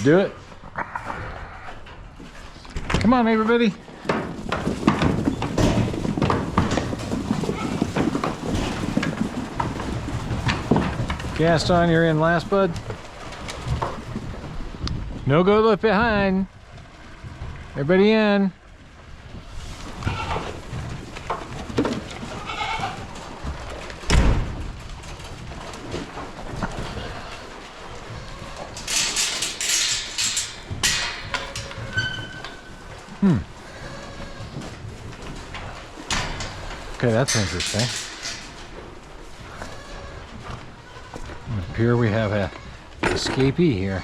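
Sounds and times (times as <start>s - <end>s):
hooves clattering: 0.0s - 44.0s
goats and sheep bleating: 22.2s - 23.2s, 26.6s - 34.9s, 39.4s - 42.9s.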